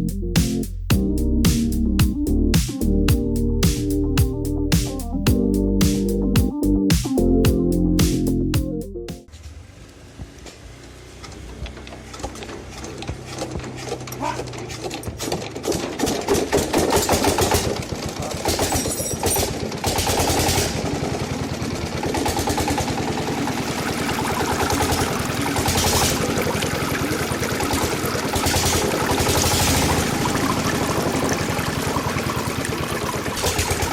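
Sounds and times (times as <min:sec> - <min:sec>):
model engine rapid ticking: 0:12.2 - 0:33.9.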